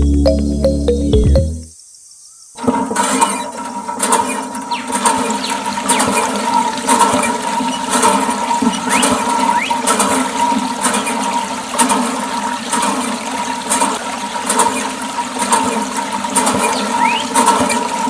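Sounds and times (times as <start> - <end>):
electric water pump whining: 4.4 - 18.0
water gushing and splashing: 5.0 - 18.0.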